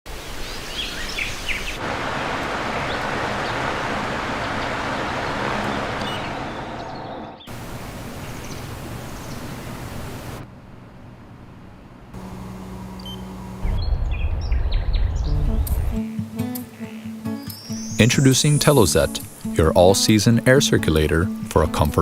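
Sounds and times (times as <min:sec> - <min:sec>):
rushing wind: 0:01.8 - 0:10.4, 0:13.4 - 0:16.0
faint bird chirps: 0:13.0 - 0:19.1.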